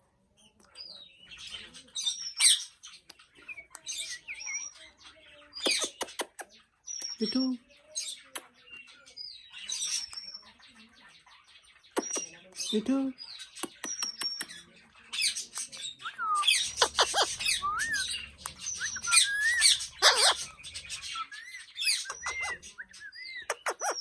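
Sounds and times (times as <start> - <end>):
parrot chirps: 15.2 - 24.0
parrot whistles and squawks: 15.3 - 24.0
parrot chattering: 16.4 - 21.1, 21.8 - 22.6, 23.4 - 24.0.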